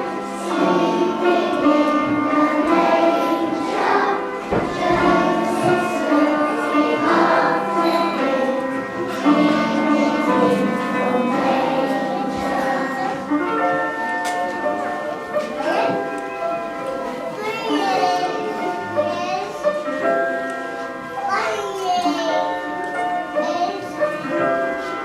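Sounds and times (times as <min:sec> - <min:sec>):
group singing with instruments: 0:00.0 - 0:13.4.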